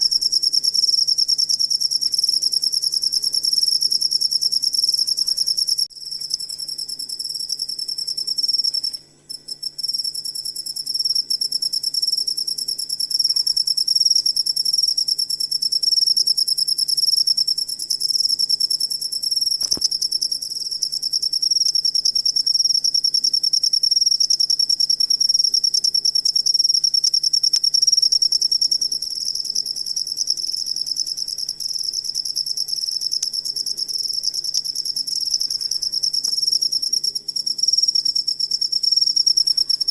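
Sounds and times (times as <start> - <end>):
cricket trilling: 0.0 - 39.9
single click: 19.6 - 19.9.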